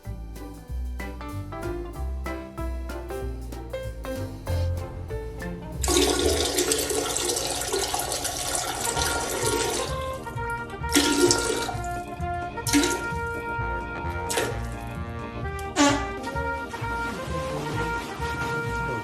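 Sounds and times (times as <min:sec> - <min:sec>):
background music: 0:00.0 - 0:19.0
rush of flushing water: 0:04.7 - 0:13.2.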